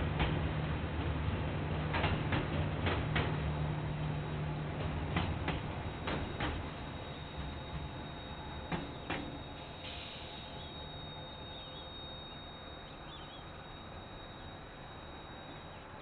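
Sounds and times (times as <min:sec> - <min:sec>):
passing train rumble: 0:00.0 - 0:16.0
faint bird chirps: 0:07.0 - 0:16.0.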